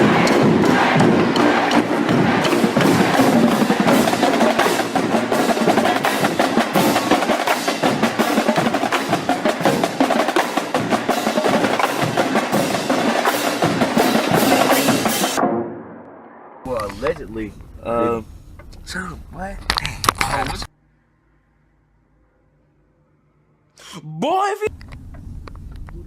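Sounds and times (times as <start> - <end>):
drumline snare drumming: 0.0 - 15.4.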